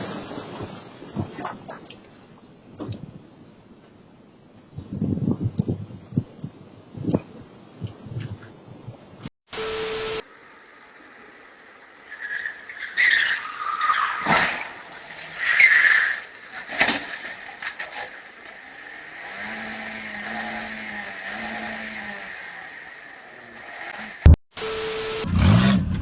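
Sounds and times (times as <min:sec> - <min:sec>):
vehicle engine running: 0:24.6 - 0:26.0.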